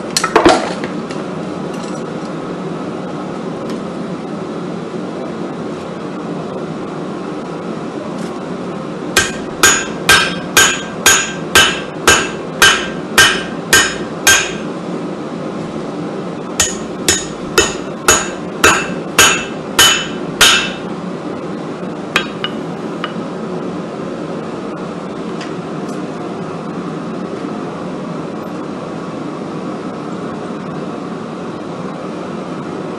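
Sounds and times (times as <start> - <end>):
steady hum: 0.0 - 32.9
hammer ringing on anvil: 9.2 - 14.7, 16.6 - 20.9, 22.2 - 23.2.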